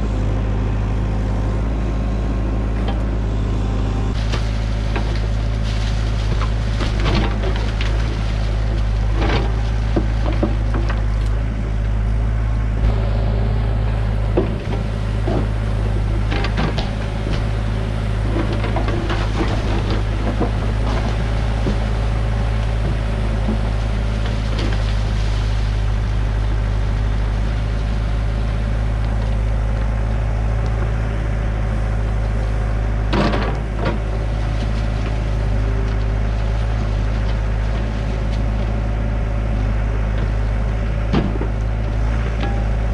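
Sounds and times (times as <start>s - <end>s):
excavator diesel engine running: 0.0s - 42.9s
bucket knocking and scraping: 4.2s - 11.2s, 14.2s - 25.9s.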